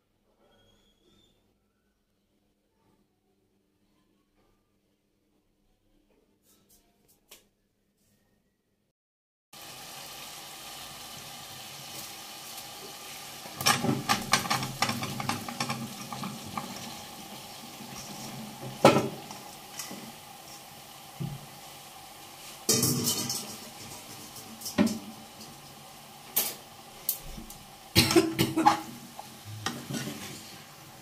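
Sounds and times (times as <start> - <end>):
food sizzling in hot oil: 9.6 - 31.0
pieces clattering into pan: 13.4 - 20.2, 22.6 - 25.7, 26.3 - 30.7.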